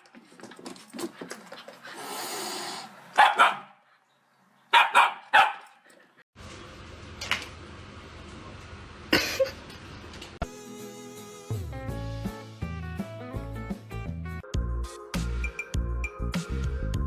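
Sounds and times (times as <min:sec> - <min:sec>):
dog barking: 0:03.2 - 0:03.8, 0:04.7 - 0:05.8.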